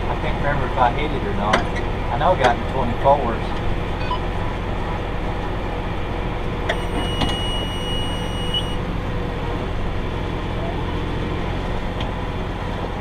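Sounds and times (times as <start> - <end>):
tractor engine running under load: 0.0 - 13.0
high electronic beep: 4.0 - 4.3, 6.7 - 8.8.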